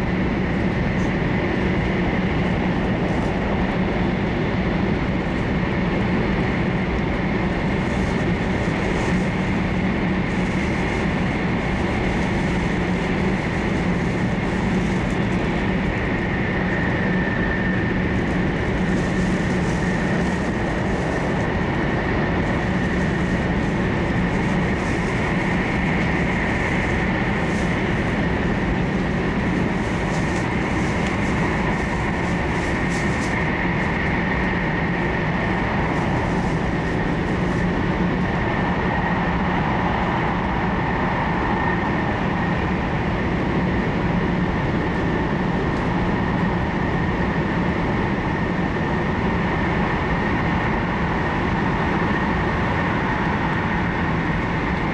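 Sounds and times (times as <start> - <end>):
train rumble and rush: 0.0 - 54.9
high whine: 2.2 - 43.0.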